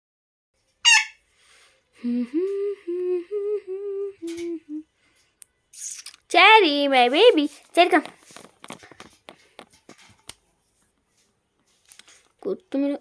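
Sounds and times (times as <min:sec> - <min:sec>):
parakeet high-pitched call: 0:00.8 - 0:01.2
person humming a tune: 0:02.0 - 0:04.9.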